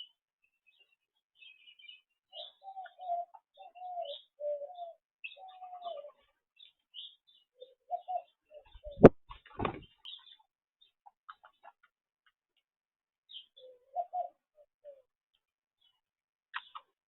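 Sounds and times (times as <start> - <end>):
small birds chirping: 0.0 - 17.0
dove cooing: 2.4 - 6.3, 7.6 - 9.9, 13.6 - 15.0.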